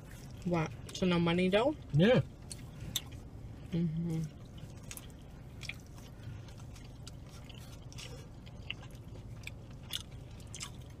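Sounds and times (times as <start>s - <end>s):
low steady hum: 0.0s - 11.0s
faint chewing: 2.3s - 11.0s.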